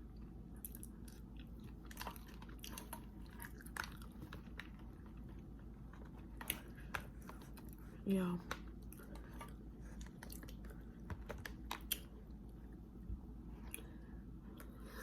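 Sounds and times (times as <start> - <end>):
chewing and biting sausage: 0.6 - 7.9, 8.8 - 12.2.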